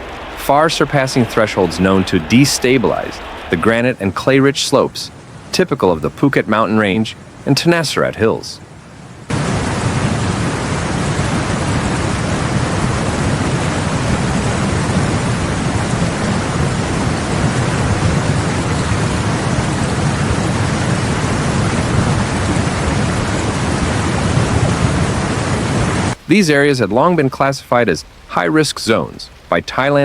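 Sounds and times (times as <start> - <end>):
low rumble: 0.0 - 4.1
heavy rain: 0.0 - 30.0.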